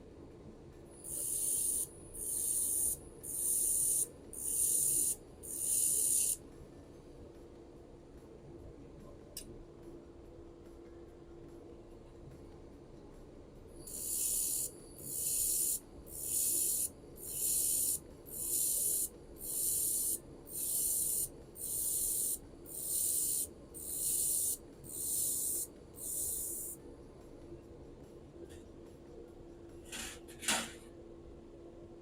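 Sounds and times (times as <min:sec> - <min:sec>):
laser welder hissing: 0:01.0 - 0:06.4, 0:13.9 - 0:26.8.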